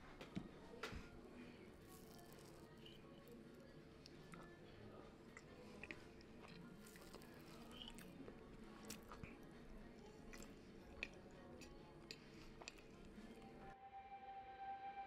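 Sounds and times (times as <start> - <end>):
chewing and crunching: 1.7 - 13.6.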